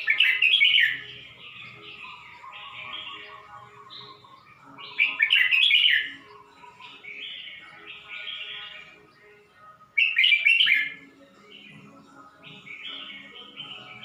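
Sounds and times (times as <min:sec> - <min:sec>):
bird singing warbled phrases: 0:00.0 - 0:14.0.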